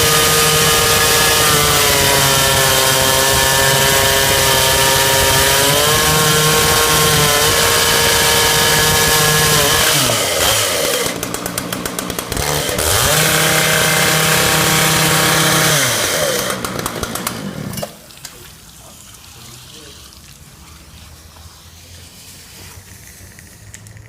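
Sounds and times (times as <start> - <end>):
chainsaw cutting stone: 0.0 - 18.0.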